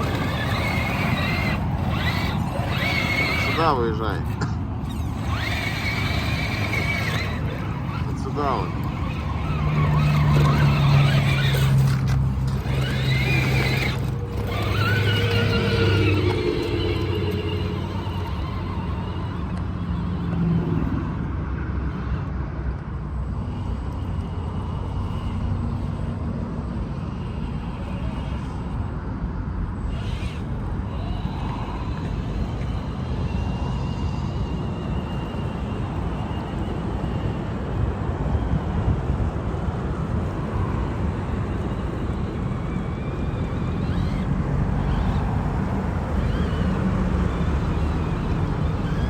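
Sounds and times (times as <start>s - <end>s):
faint high whine: 0.0s - 21.2s
electric motor and gearbox rumbling: 0.0s - 49.0s.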